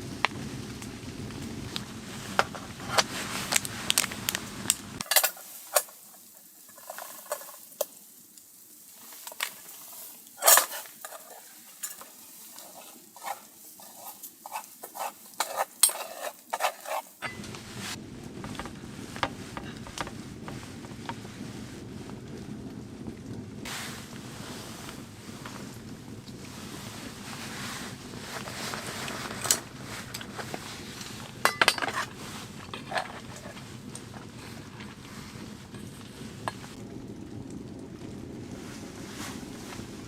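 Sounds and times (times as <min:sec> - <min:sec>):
low rumble of wind: 0:00.0 - 0:05.1, 0:17.2 - 0:40.0
food sizzling in a pan: 0:00.0 - 0:21.5
utensil scraping and clinking pan: 0:05.0 - 0:07.9, 0:09.3 - 0:17.9, 0:29.2 - 0:36.7.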